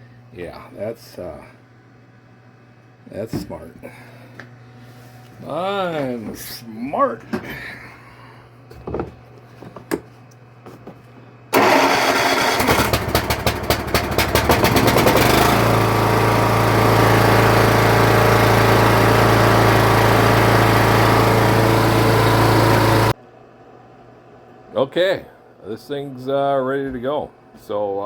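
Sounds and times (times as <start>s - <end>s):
lawn tractor engine running: 11.6s - 23.2s.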